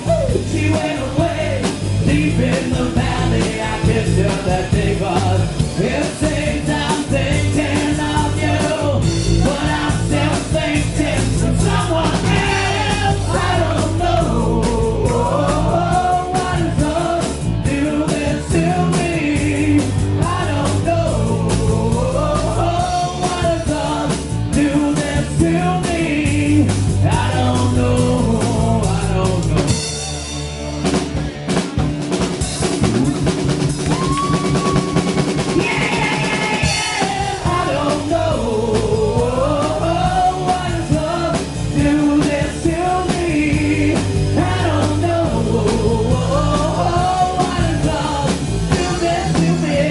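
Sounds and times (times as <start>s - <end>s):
wavering melodic lead line: 0.0s - 24.7s
bass guitar: 0.0s - 49.9s
drums: 0.0s - 49.9s.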